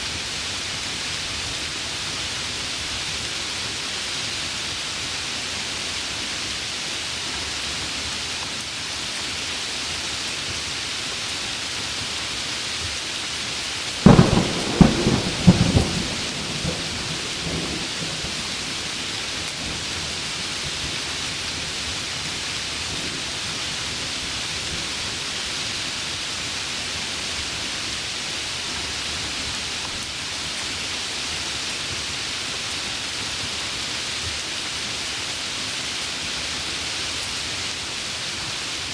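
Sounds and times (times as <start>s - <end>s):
heavy rain hiss: 0.0s - 38.9s
thunderclap cracking and rumbling: 14.0s - 20.4s.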